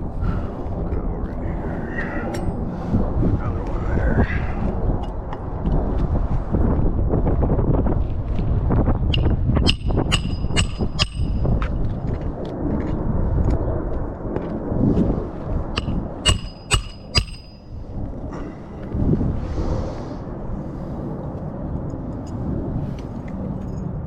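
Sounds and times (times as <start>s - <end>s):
wind rumble on microphone: 0.0s - 24.0s
hammer striking nails: 9.1s - 11.6s, 15.8s - 17.7s.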